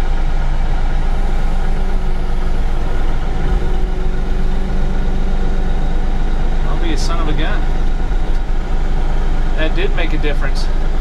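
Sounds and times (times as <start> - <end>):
diesel engine idling: 0.0 - 11.0
high steady hydraulic tone: 0.0 - 11.0.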